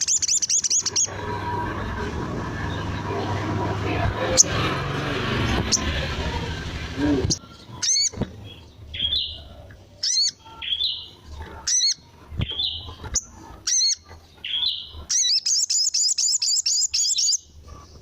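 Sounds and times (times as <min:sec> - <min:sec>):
sunbird calling: 0:00.0 - 0:01.2, 0:13.7 - 0:17.4.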